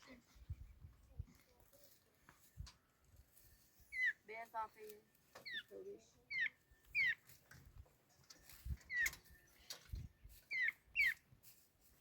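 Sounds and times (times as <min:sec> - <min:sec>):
bird whistling calls: 0:10.5 - 0:11.2.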